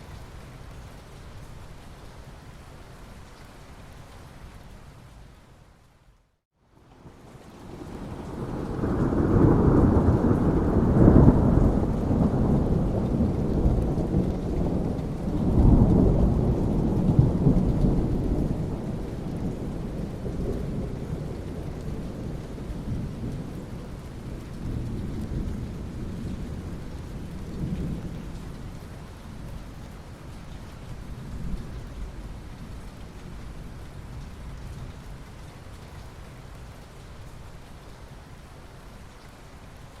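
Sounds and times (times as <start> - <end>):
steady rain hiss: 0.0 - 40.0
rolling thunder: 7.6 - 28.6.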